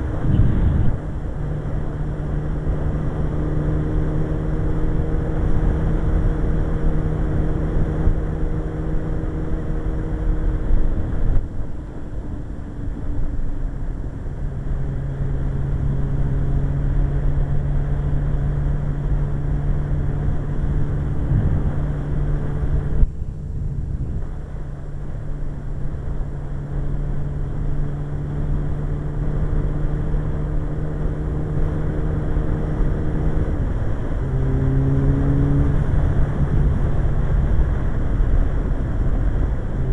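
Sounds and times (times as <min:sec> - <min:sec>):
wind rush: 0:00.0 - 0:01.9, 0:20.5 - 0:25.5
motorcycle engine running: 0:00.0 - 0:11.7, 0:14.4 - 0:39.9.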